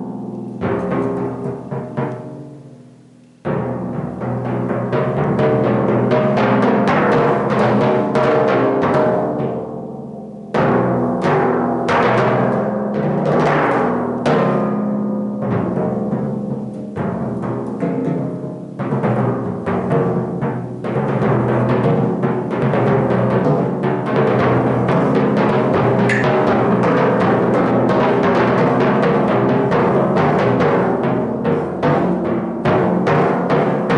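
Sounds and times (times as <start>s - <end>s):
timpani strokes ringing: 15.4s - 33.9s.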